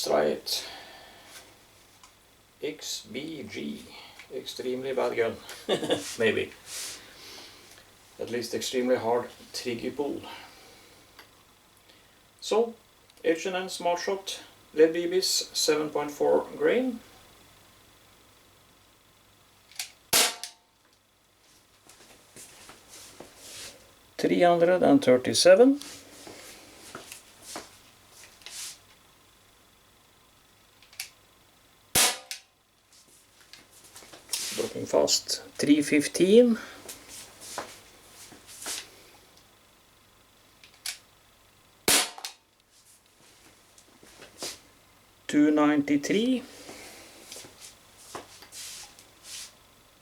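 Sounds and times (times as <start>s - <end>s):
bb pistol shot crack: 20.1s - 20.6s, 32.0s - 32.4s, 41.8s - 42.4s.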